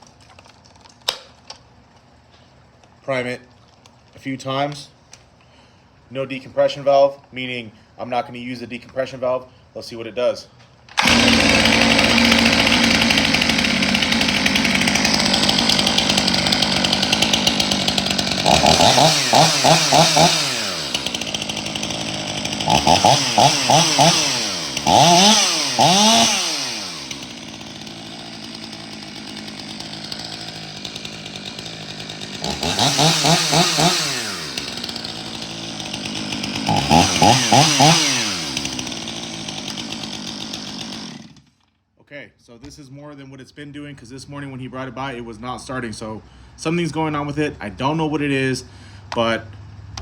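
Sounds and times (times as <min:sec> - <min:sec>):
chainsaw revving and idling: 0:11.0 - 0:41.6.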